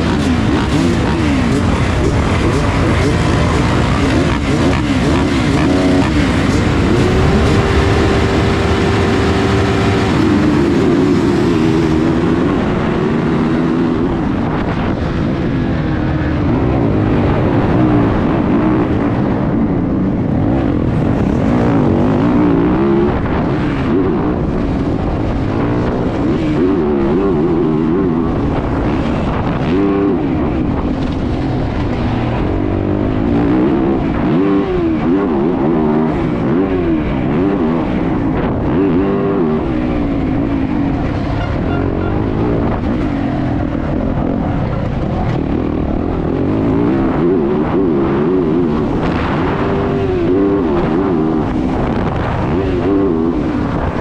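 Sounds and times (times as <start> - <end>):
motocross bike engine revving: 0.0 - 14.9, 16.2 - 30.1.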